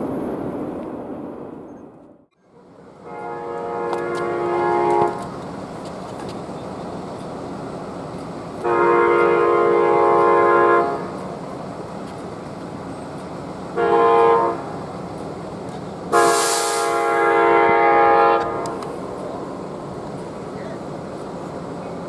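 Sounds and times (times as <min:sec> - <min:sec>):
locomotive air horn blasts: 0:03.0 - 0:05.4, 0:08.6 - 0:11.3, 0:13.7 - 0:14.9, 0:16.1 - 0:19.2
air hiss: 0:16.1 - 0:17.7.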